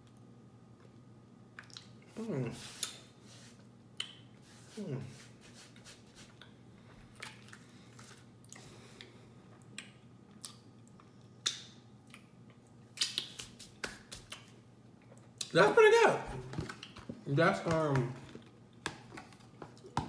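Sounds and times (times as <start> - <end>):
person chewing with lip smacks: 1.5 - 2.0, 7.2 - 15.5.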